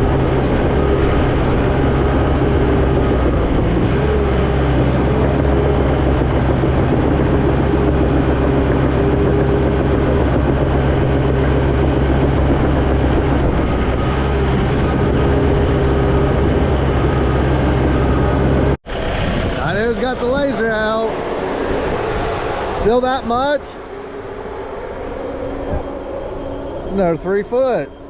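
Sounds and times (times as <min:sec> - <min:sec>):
diesel engine droning: 0:00.0 - 0:28.0
steady higher tone: 0:19.8 - 0:28.0.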